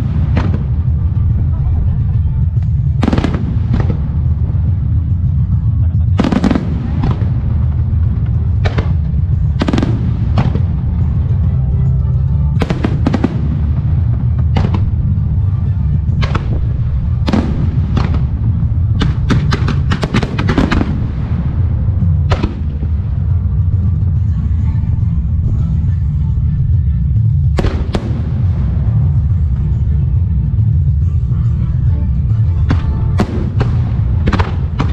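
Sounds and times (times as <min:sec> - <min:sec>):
fireworks bursting: 0:00.0 - 0:01.9, 0:02.5 - 0:05.2, 0:06.1 - 0:11.5, 0:12.6 - 0:23.4, 0:27.6 - 0:30.0, 0:32.7 - 0:34.9
low rumble: 0:00.0 - 0:34.9
music: 0:00.0 - 0:34.9.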